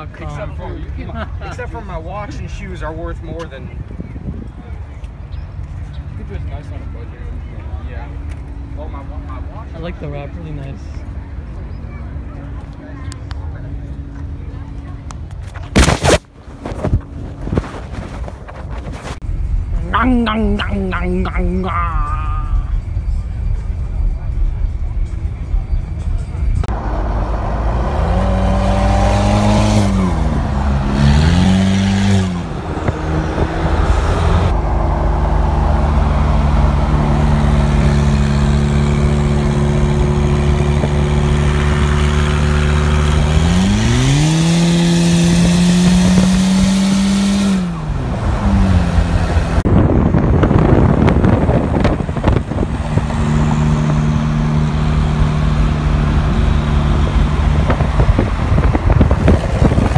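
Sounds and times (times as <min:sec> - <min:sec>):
car engine revving: 0:15.7 - 0:59.9.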